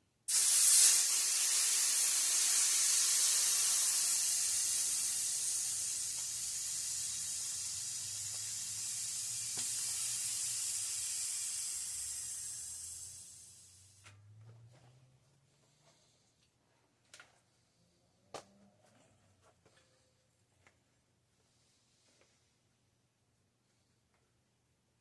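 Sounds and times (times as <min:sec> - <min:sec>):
air hissing from tire valve: 0:00.3 - 0:14.0.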